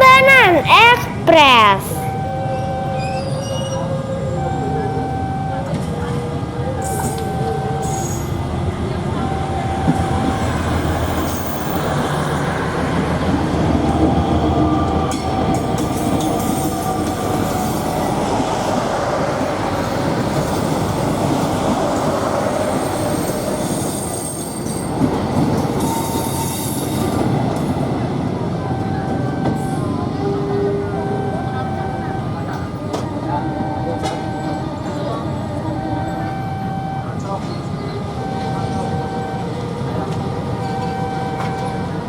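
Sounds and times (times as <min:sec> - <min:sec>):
train wheels rumbling on rail: 0:01.0 - 0:42.0
faint thin wheel squeals: 0:03.0 - 0:03.9.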